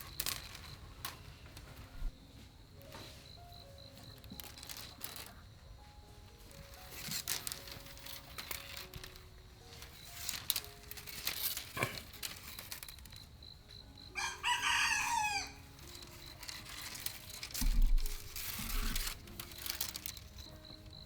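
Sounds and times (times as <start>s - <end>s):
rooster crowing: 14.2s - 15.6s.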